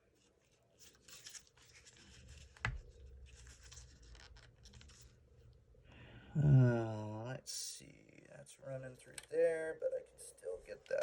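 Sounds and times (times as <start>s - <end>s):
parts scraping and rustling: 0.2s - 5.2s.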